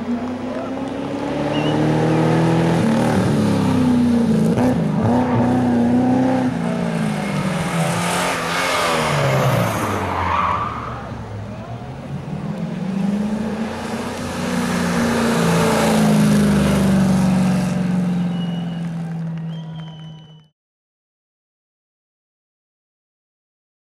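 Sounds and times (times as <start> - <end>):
rally car engine revving: 0.0 - 11.2, 12.0 - 18.9.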